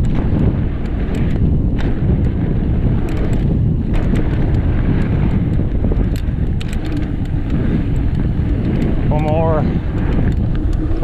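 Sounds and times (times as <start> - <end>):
low rumble of bike on trail: 0.0 - 11.0
wind rushing over microphone: 0.0 - 11.0
short clicks and rattles: 3.0 - 11.0.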